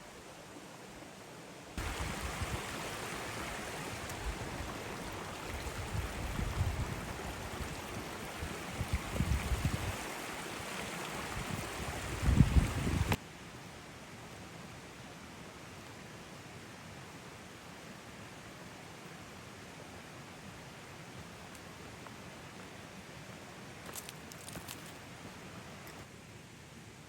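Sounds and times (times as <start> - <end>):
river water rushing: 0.2 - 13.2.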